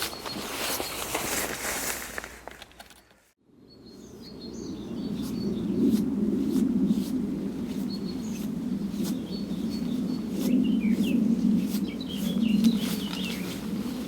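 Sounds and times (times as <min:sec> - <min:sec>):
small birds chirping: 0:00.0 - 0:01.2, 0:03.7 - 0:06.0, 0:07.7 - 0:13.7.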